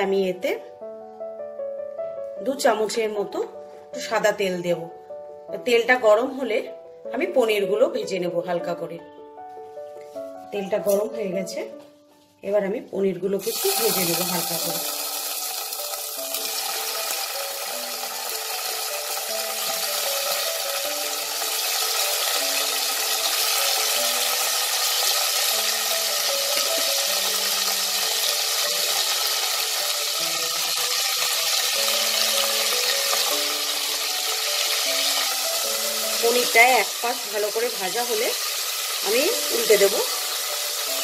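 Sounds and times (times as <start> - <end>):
soft background music: 0.0 - 41.0
food sizzling in hot oil: 13.4 - 41.0.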